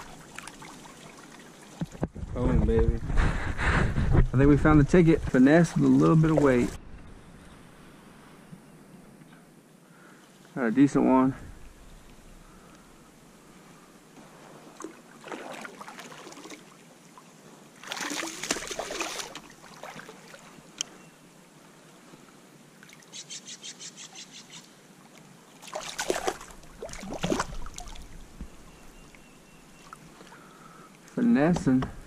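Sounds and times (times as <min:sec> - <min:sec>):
water splashing and dripping: 0:00.0 - 0:02.1, 0:05.2 - 0:06.8, 0:14.8 - 0:16.8, 0:17.8 - 0:20.9, 0:25.1 - 0:29.2.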